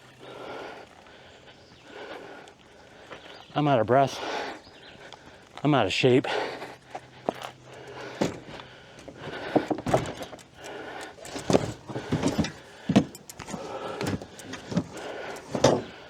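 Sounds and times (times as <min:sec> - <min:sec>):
camping gear knocks and rattles: 0:07.2 - 0:16.0.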